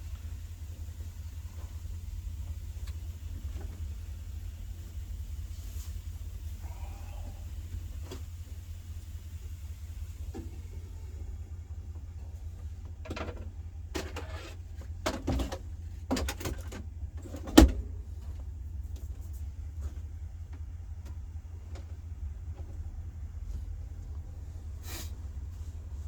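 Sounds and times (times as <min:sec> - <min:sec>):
knocks and clatters: 0:12.6 - 0:19.4.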